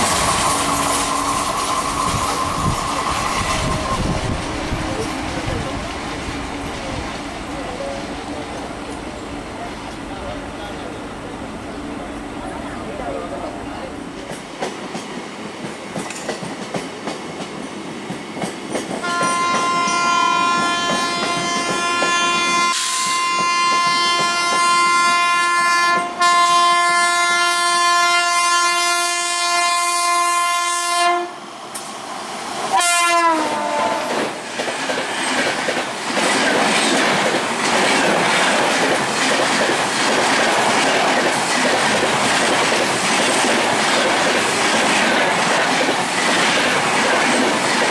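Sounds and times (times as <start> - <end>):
train wheels clattering on rails: 0.0 - 7.9, 14.1 - 25.3, 33.7 - 47.9
train horn: 19.0 - 31.4, 32.7 - 34.3.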